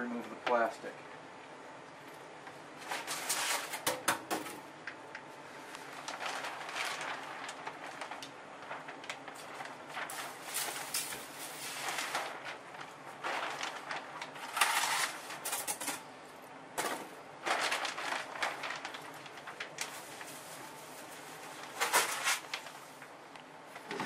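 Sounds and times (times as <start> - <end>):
plastic sheeting crinkling: 2.5 - 3.9, 4.7 - 24.0.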